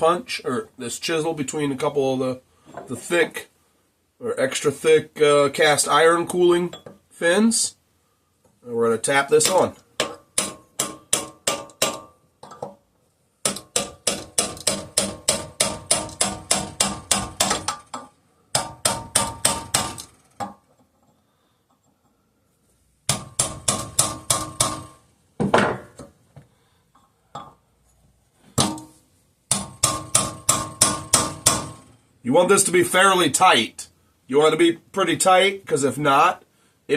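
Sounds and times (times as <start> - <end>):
hammer tapping on metal: 9.4 - 12.7, 13.5 - 20.6, 28.6 - 31.8.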